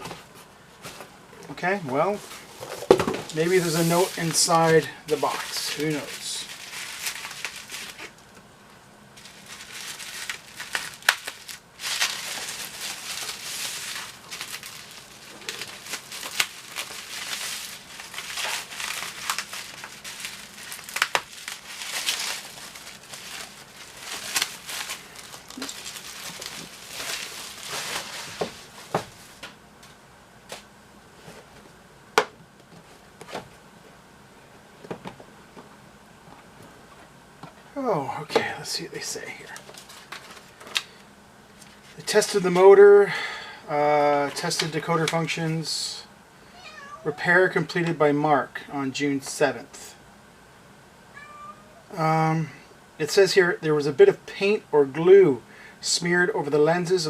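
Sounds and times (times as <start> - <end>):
packing material crinkling: 3.3 - 8.3, 9.2 - 29.5, 39.2 - 41.0.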